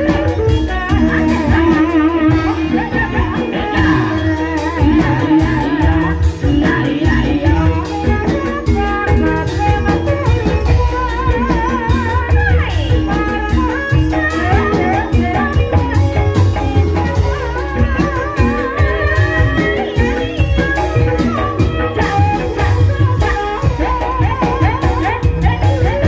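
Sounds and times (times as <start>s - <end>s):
drums: 0.0s - 26.0s
person singing: 0.0s - 26.0s
pitched percussion instruments: 0.0s - 26.0s.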